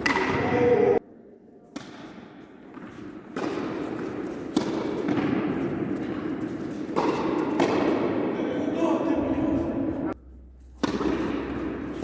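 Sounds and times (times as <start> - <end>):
tennis ball struck by rackets: 0.0 - 0.5, 1.7 - 8.2, 10.8 - 12.0.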